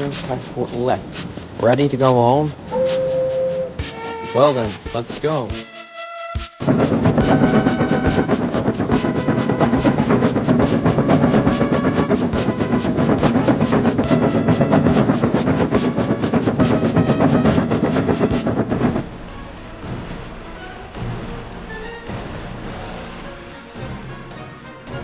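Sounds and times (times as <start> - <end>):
train clickety-clack on track: 6.6 - 19.2, 23.6 - 25.0.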